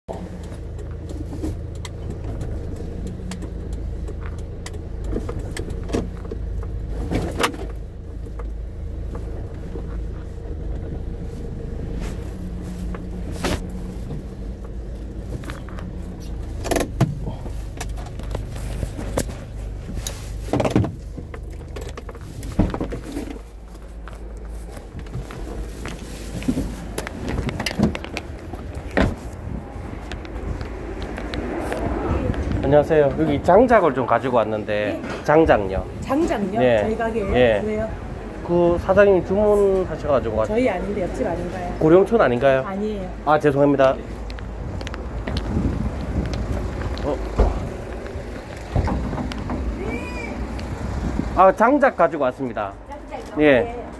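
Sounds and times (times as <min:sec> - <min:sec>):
vehicle engine hum: 0:00.1 - 0:53.9
sharp knocks or rattles: 0:48.4 - 0:49.9.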